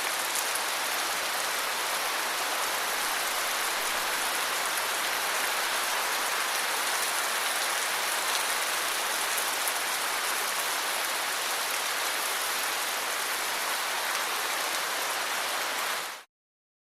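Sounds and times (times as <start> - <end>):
steady rain hiss: 0.0 - 16.3.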